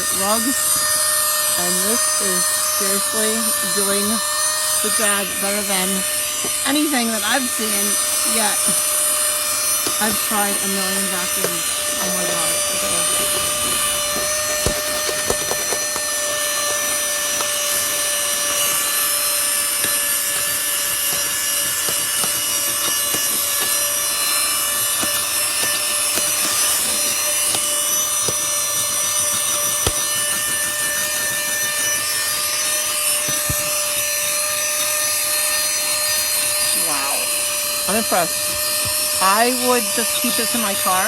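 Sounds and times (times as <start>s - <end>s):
handheld vacuum motor whine: 0.0s - 41.0s.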